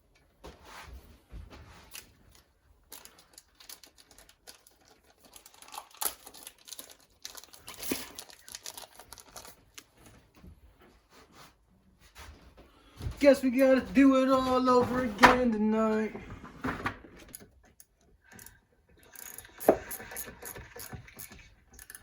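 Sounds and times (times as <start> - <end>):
crinkling rustling handling noise: 1.2 - 11.1.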